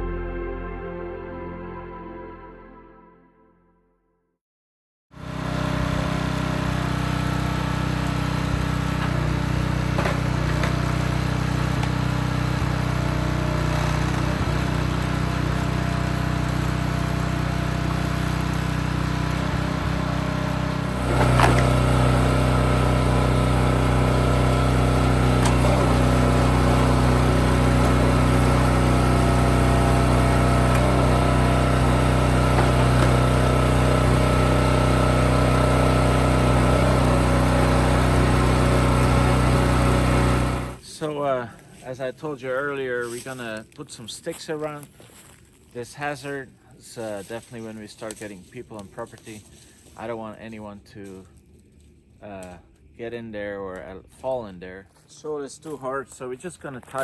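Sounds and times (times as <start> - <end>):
engine running: 5.2 - 40.8.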